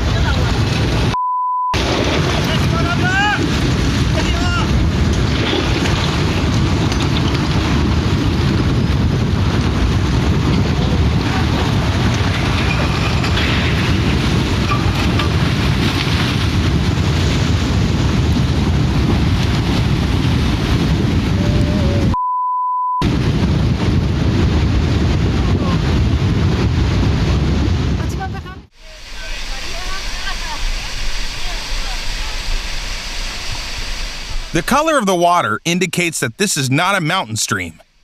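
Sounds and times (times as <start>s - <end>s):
censor beep: 1.1s - 1.8s, 22.1s - 23.0s
loud rushing wind noise: 1.8s - 22.2s, 23.0s - 34.7s.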